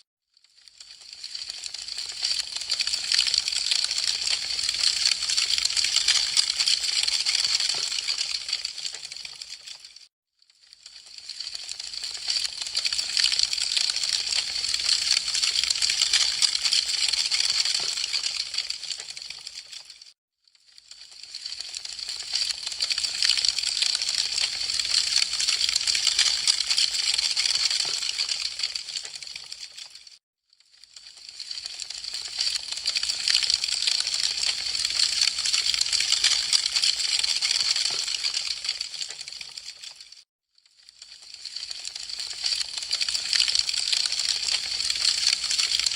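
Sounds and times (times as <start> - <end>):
wood fire crackling: 8.0 - 9.6, 10.9 - 19.8, 43.0 - 45.9
burning wood crackling: 43.0 - 45.9.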